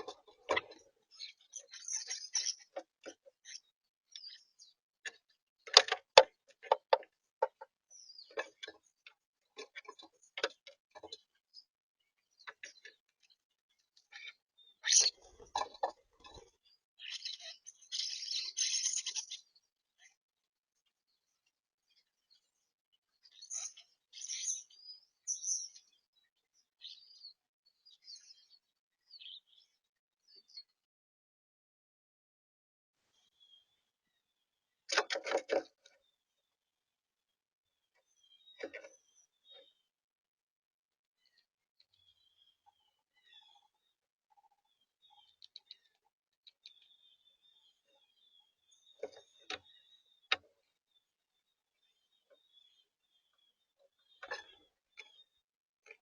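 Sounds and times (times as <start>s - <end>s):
high bird chirps: 0.0s - 2.8s, 14.1s - 19.6s, 23.2s - 26.1s
bird chirping: 0.0s - 20.2s, 20.8s - 30.8s, 33.1s - 36.6s, 37.7s - 39.9s, 41.2s - 56.0s.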